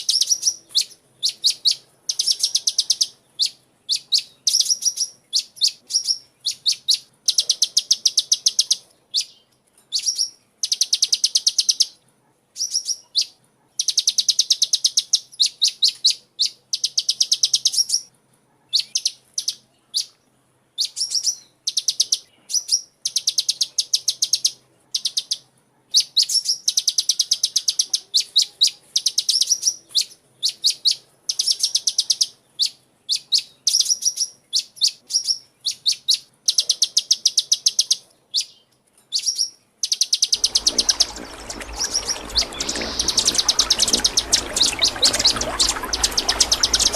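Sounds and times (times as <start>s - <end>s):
bird chirping in fast trills: 39.2s - 46.9s.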